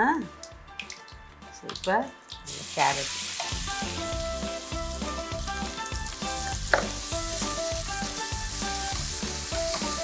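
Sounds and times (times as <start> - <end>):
soft background music: 0.0 - 10.0
carrot sizzling in hot oil: 2.4 - 10.0.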